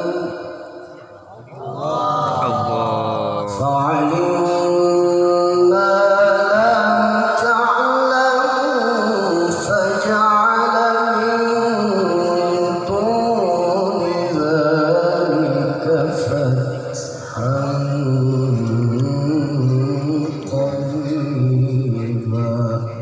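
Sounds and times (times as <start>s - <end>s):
man reciting melodically: 0.0s - 23.0s.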